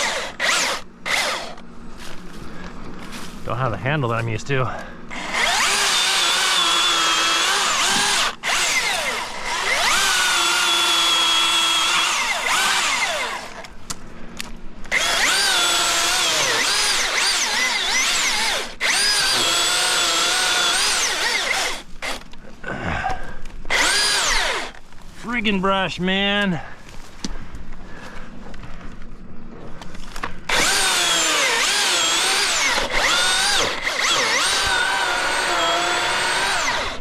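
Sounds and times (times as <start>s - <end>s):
electric chainsaw cutting wood: 0.0s - 1.6s, 5.1s - 13.7s, 14.9s - 22.3s, 23.7s - 24.8s, 30.5s - 37.0s.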